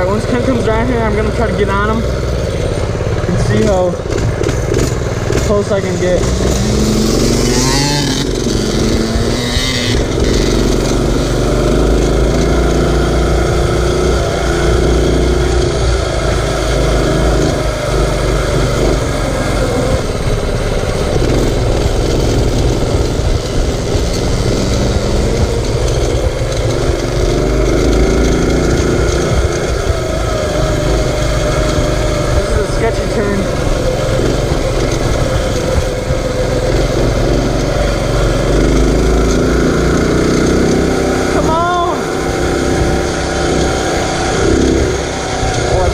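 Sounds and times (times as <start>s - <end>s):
small engine revving: 0.0s - 45.9s
wind rumble on microphone: 0.0s - 45.9s.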